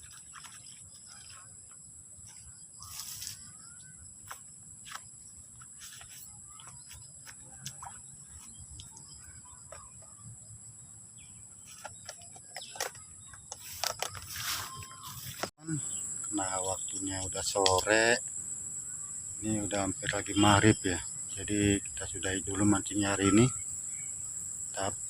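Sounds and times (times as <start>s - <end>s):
high-pitched insect drone: 0.0s - 25.0s.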